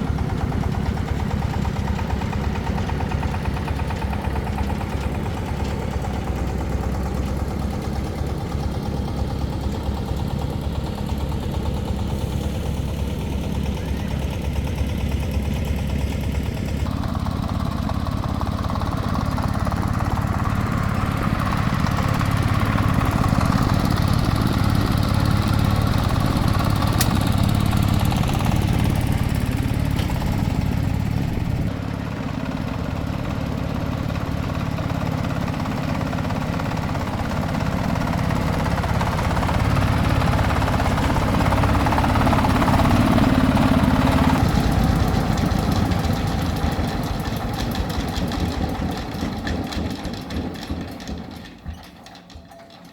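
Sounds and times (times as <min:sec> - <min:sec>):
engine running: 0:00.0 - 0:52.9.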